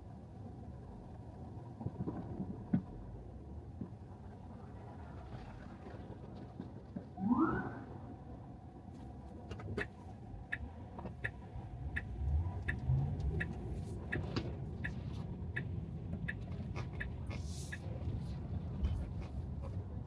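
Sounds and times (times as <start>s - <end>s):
road rumble inside car: 0.0s - 20.0s
turn signal ticking: 9.8s - 17.9s.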